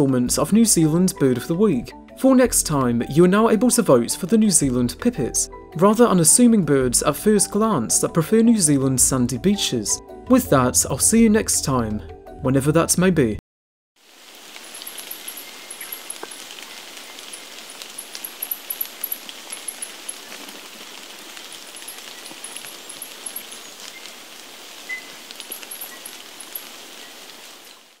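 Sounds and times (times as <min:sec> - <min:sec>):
hiss of bush noise: 0:14.0 - 0:28.0
bird high-pitched chips: 0:14.5 - 0:28.0.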